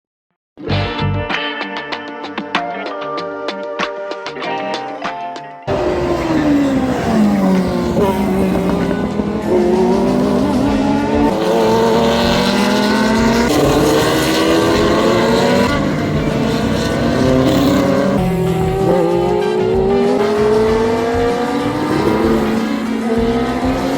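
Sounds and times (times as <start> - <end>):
racing car engines passing: 5.7 - 23.9
short piece of music: 5.7 - 23.9.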